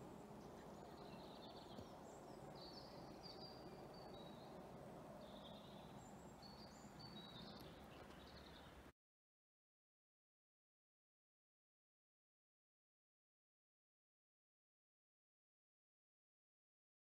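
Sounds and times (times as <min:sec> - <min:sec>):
birds chirping: 0:00.0 - 0:08.9
open air background noise: 0:00.0 - 0:09.0.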